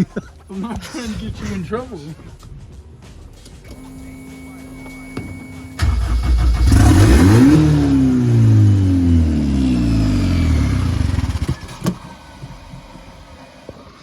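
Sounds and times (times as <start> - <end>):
car engine revving down: 3.8 - 14.0.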